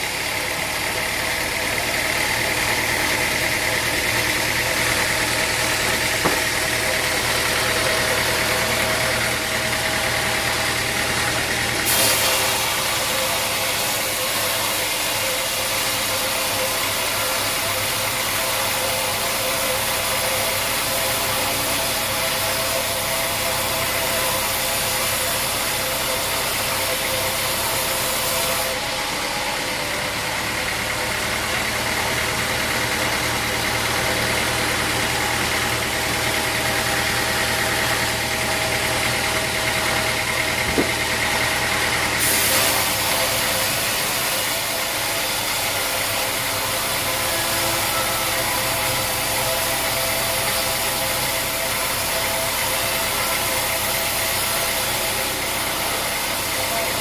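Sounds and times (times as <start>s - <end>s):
sawmill engine running: 0.0s - 57.0s.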